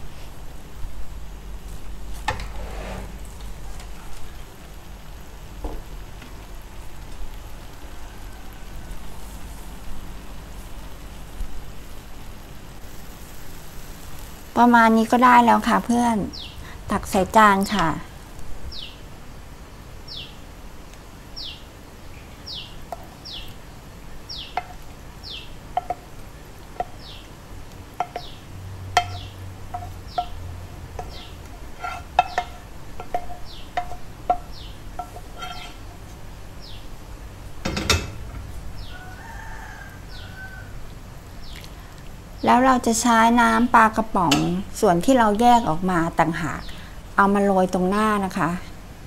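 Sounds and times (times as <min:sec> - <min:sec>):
small bird chirping: 0:16.3 - 0:16.6, 0:21.4 - 0:23.6, 0:24.2 - 0:26.0, 0:26.8 - 0:27.3, 0:28.1 - 0:28.5, 0:29.1 - 0:30.4, 0:31.0 - 0:31.4, 0:33.3 - 0:35.9.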